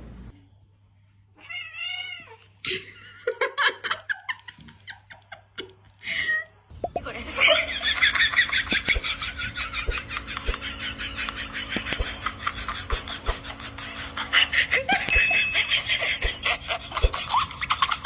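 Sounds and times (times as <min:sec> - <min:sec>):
faint steady hum: 0:00.0 - 0:18.0
person laughing hard: 0:07.0 - 0:18.0.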